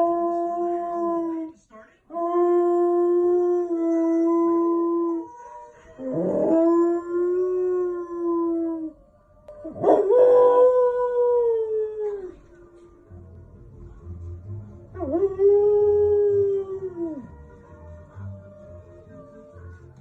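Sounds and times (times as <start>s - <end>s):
dog howling: 2.2s - 9.0s.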